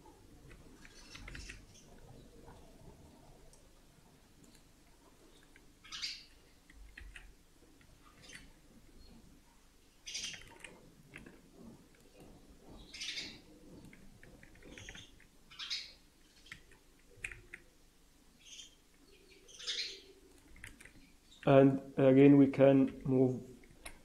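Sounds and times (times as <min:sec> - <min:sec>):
keyboard and mouse clicks: 0:00.4 - 0:02.1, 0:06.6 - 0:08.5, 0:10.1 - 0:12.2, 0:13.8 - 0:15.3, 0:16.4 - 0:17.7, 0:20.3 - 0:21.1
faint bird chirps: 0:18.4 - 0:20.3.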